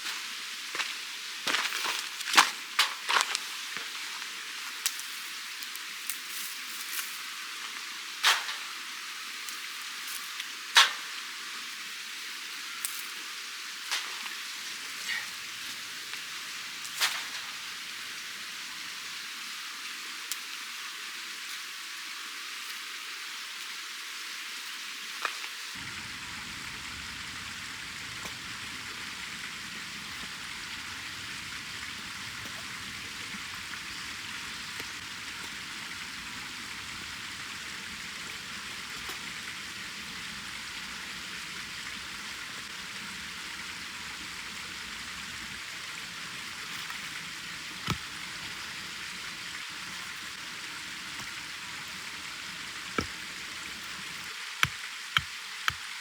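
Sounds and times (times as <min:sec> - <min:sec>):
sharp pops of burning wood: 0:10.8 - 0:11.1, 0:46.4 - 0:49.1
wood fire crackling: 0:25.8 - 0:55.8.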